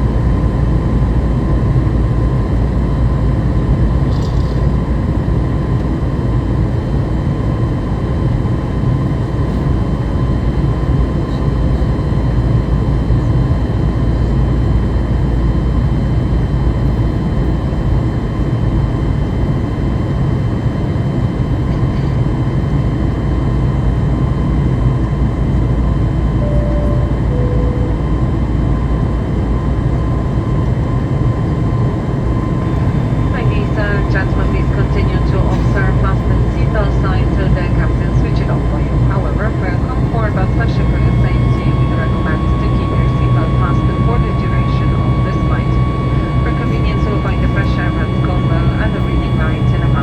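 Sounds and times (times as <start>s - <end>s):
jet engine rumble and airflow: 0.0s - 50.0s
faint steady whine: 26.3s - 50.0s
two-note cabin chime: 26.4s - 28.6s.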